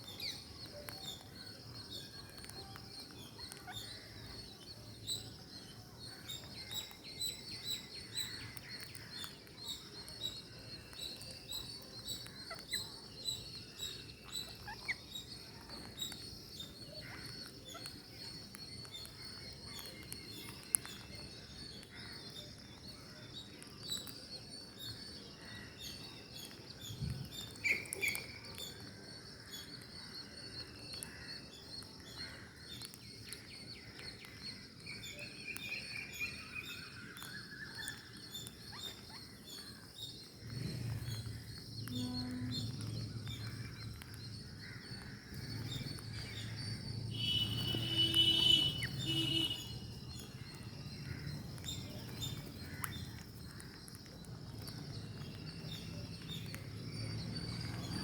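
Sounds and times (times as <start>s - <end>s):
birds chirping: 0.0s - 58.0s
dense high chirping chorus: 39.3s - 53.8s
short whistled calls: 47.1s - 49.8s.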